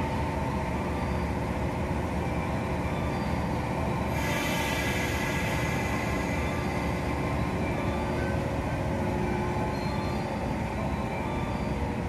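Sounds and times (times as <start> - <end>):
train rumbling on rails: 0.0 - 12.0
high hiss: 4.1 - 8.1.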